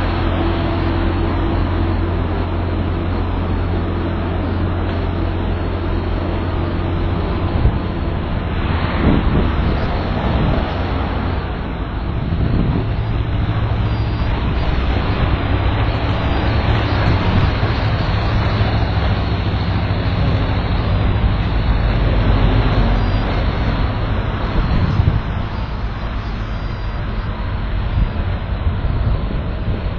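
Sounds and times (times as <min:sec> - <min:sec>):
loud engine rumble: 0:00.0 - 0:29.9
rushing noise: 0:00.0 - 0:29.9.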